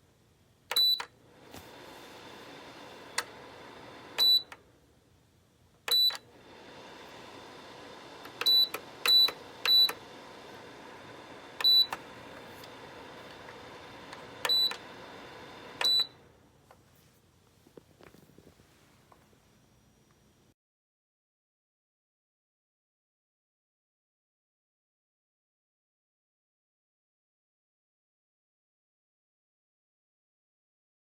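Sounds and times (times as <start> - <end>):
heater fan whirring: 0.6 - 20.5
heater control panel beeps: 0.7 - 4.7, 5.9 - 16.3.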